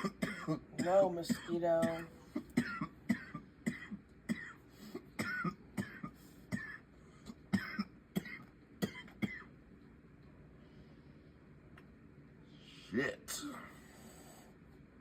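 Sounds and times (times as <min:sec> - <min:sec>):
person coughing: 0:00.0 - 0:09.5.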